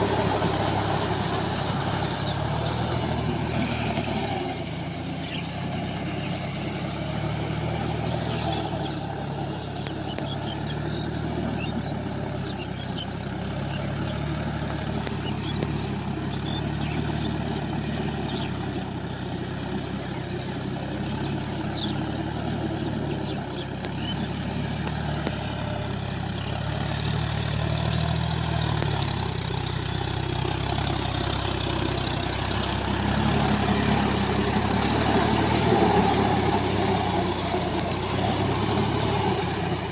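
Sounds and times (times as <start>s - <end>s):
tractor diesel engine running: 0.0s - 39.9s
faint light ticks: 23.8s - 24.1s, 28.8s - 29.0s.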